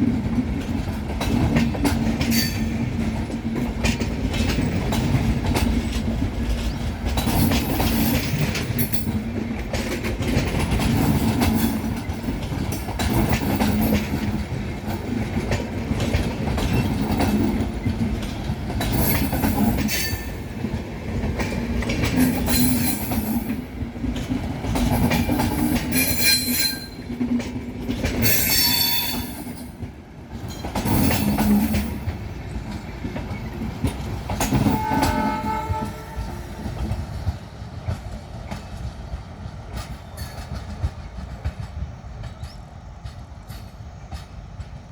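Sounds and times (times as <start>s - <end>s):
train wheels clattering over joints: 0.0s - 44.9s
high-pitched wheel squeals: 25.9s - 27.0s, 28.2s - 29.4s.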